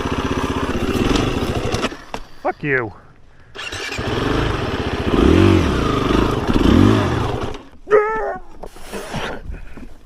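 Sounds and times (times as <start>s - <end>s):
dirt bike engine revving: 0.0s - 2.1s, 3.6s - 7.7s.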